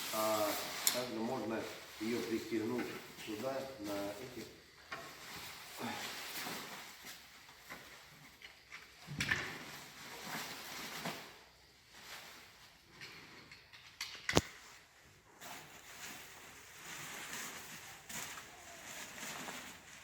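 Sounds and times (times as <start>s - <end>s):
fabric rustling and scraping: 5.0s - 8.2s, 9.5s - 12.9s, 14.5s - 20.0s.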